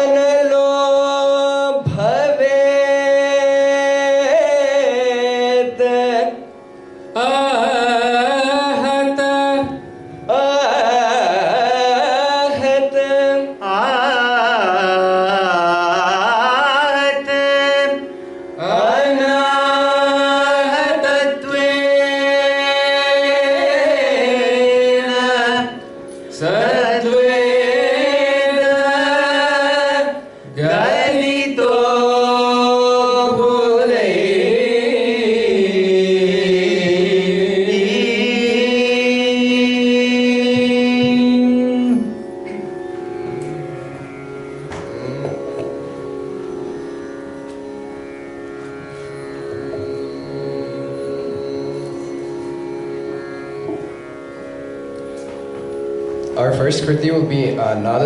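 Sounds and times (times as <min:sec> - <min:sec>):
steady drone: 0:17.2 - 0:55.3.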